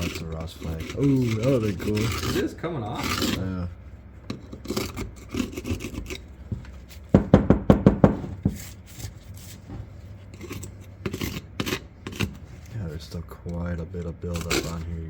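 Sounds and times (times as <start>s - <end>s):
hand tool scraping rust off metal: 0.0s - 3.5s, 8.5s - 15.0s
sharp knocks: 6.5s - 8.6s.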